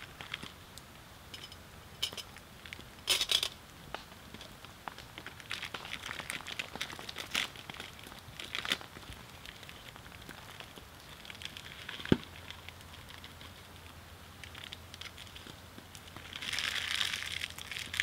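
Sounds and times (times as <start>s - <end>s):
wood fire crackling and popping: 0.0s - 18.0s
plastic packet crinkling: 4.4s - 18.0s.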